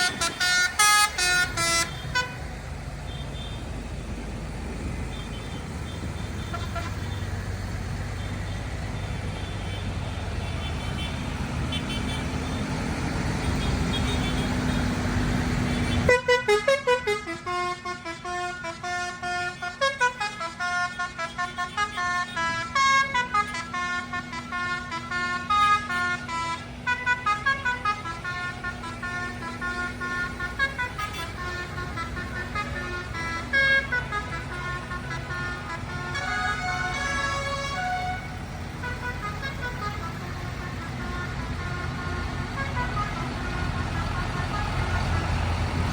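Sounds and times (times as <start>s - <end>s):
musical horn playing a tune: 0.0s - 2.5s, 5.9s - 7.2s, 15.8s - 45.7s
vehicle engine running: 0.0s - 16.2s, 24.8s - 45.9s.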